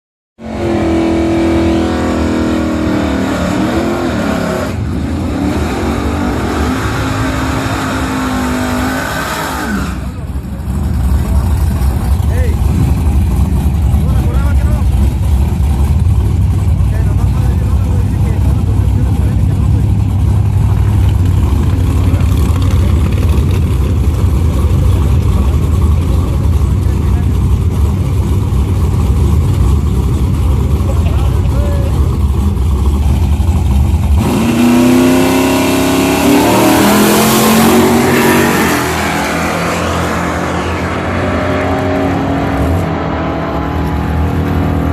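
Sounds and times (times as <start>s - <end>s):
car engine accelerating hard: 0.4s - 44.9s
road and wind noise: 0.4s - 44.9s.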